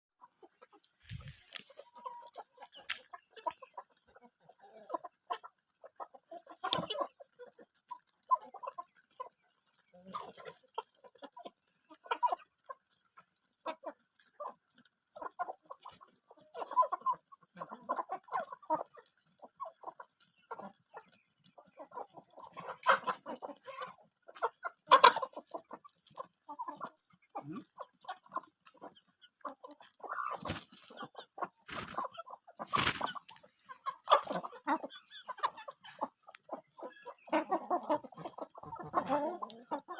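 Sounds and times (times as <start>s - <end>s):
chickens clucking: 0.2s - 39.9s.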